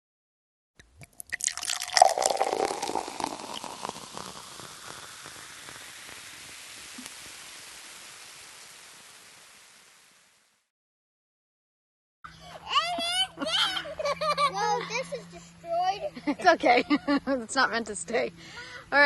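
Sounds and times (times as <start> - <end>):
cola fizzing and spraying: 1.0 - 10.5.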